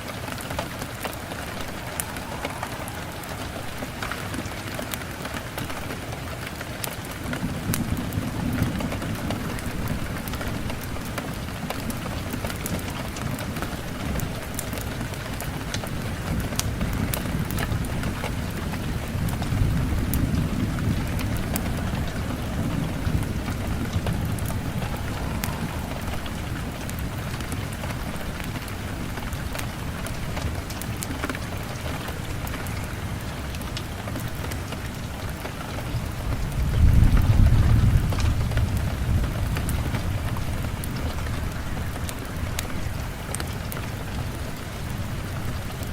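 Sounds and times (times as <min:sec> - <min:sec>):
steady rain: 0:00.0 - 0:45.9
wood fire popping and crackling: 0:00.0 - 0:45.9
low rumble: 0:00.6 - 0:05.4, 0:19.2 - 0:29.0.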